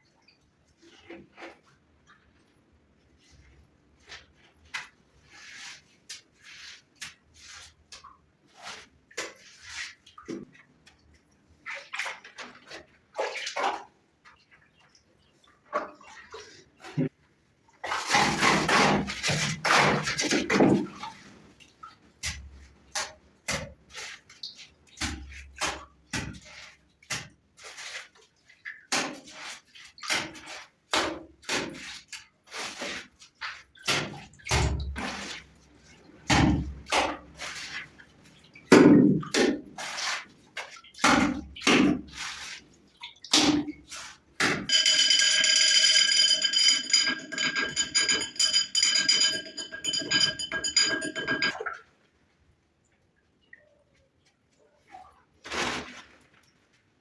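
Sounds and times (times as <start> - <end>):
knocks and clicks: 44.7 - 51.7.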